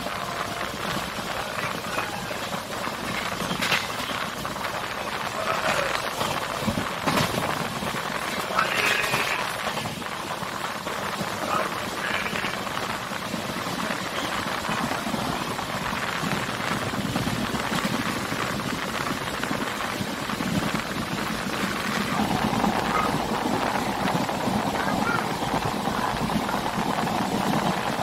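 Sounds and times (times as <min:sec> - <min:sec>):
air rushing past carriage: 0:00.0 - 0:28.0
train wheels rumbling on track: 0:00.0 - 0:28.0.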